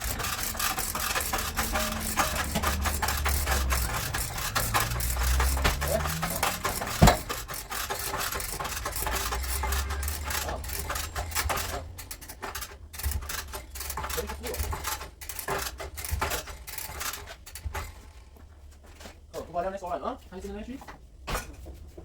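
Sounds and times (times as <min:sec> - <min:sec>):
scraping on car body panel: 0:00.0 - 0:13.9.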